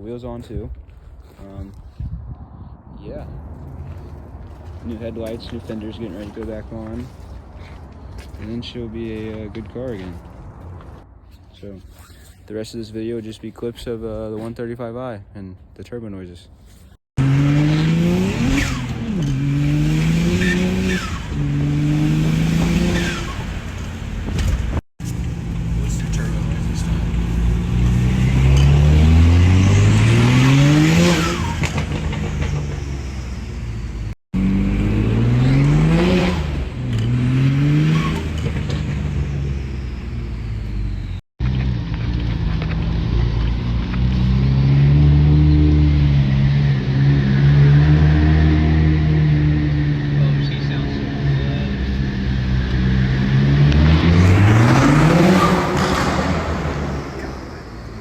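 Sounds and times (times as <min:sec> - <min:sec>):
car engine accelerating: 0:17.2 - 0:58.0.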